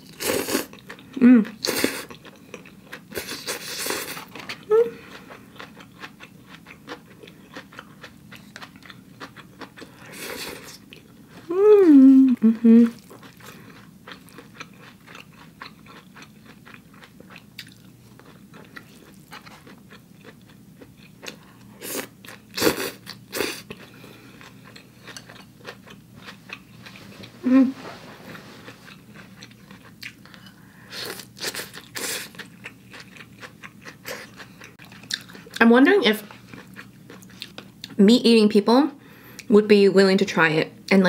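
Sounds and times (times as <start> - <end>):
chewing and crunching food: 0.0 - 11.5, 12.3 - 27.4, 28.3 - 38.0
short vocal hum: 1.2 - 1.6, 11.5 - 13.0, 27.4 - 28.1.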